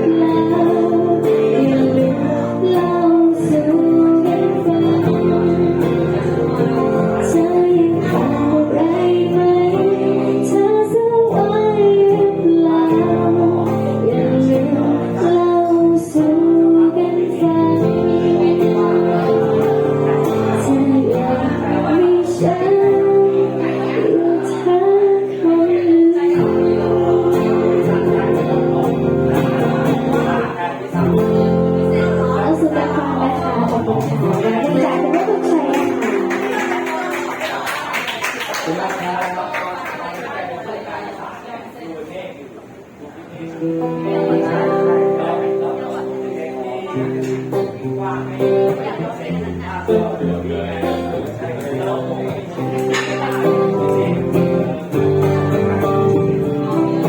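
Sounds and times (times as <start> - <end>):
woman singing: 0.0 - 29.5, 32.0 - 37.2
guitar accompaniment: 0.0 - 40.4, 42.8 - 57.0.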